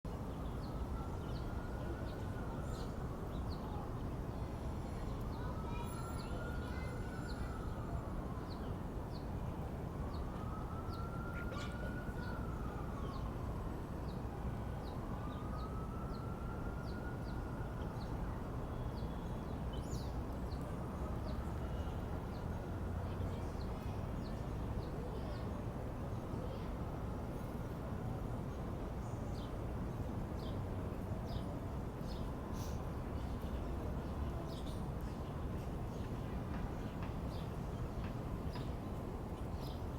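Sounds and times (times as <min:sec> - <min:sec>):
distant siren wailing: 0:00.4 - 0:03.9, 0:05.5 - 0:08.7, 0:09.9 - 0:18.6, 0:20.2 - 0:23.1.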